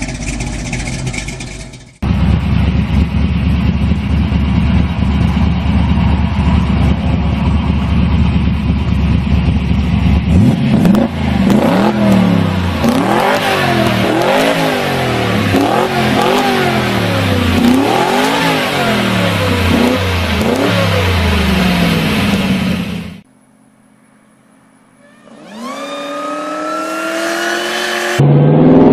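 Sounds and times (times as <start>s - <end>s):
car engine idling and revving: 0.0s - 28.9s.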